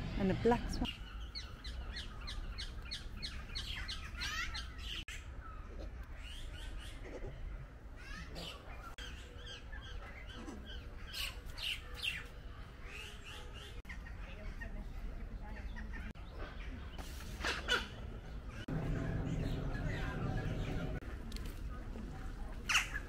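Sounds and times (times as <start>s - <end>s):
birds chirping: 0.0s - 21.0s
steady low rumble: 18.4s - 22.6s.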